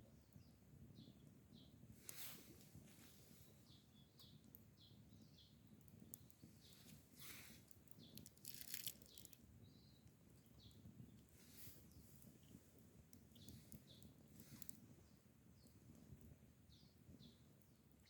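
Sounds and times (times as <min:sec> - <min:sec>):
small birds chirping: 0:00.0 - 0:18.0
soft rustles: 0:01.9 - 0:03.6, 0:06.4 - 0:09.4, 0:11.2 - 0:12.8.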